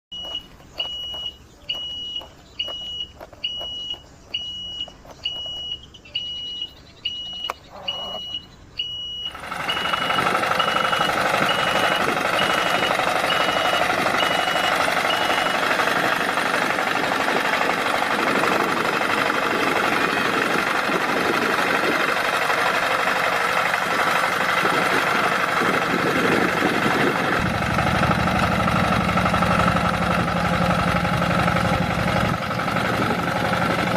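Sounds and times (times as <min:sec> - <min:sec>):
reversing alarm beeping: 0:00.1 - 0:18.3
heavy engine running: 0:00.1 - 0:33.9.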